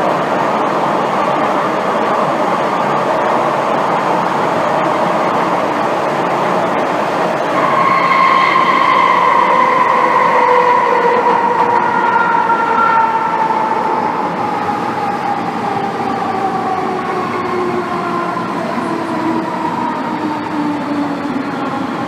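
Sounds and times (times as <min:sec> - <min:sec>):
wheels rumbling on rails: 0:00.0 - 0:22.0
traction motors whining: 0:03.2 - 0:22.0.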